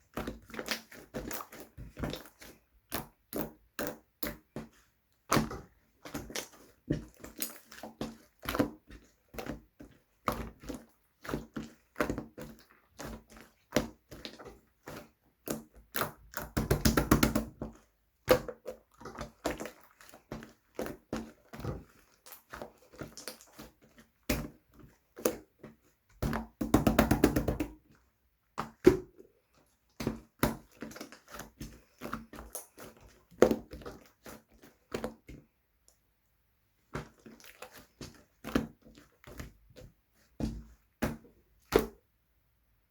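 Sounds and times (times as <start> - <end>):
slime squished by hand: 36.9 - 42.0.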